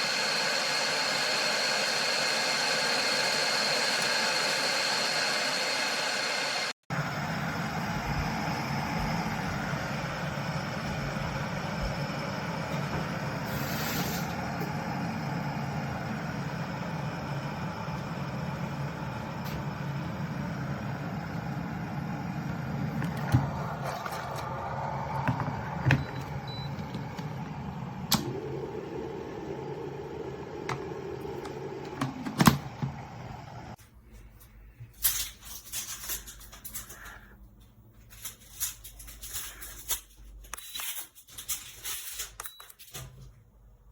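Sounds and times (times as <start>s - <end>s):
kettle switching off: 0.0s - 7.1s, 7.8s - 33.8s
kettle heating water: 0.0s - 33.8s.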